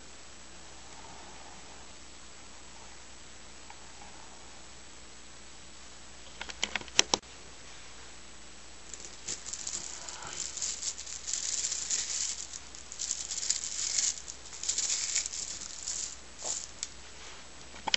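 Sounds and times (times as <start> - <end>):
magnetic spheres clicking: 8.9 - 17.0.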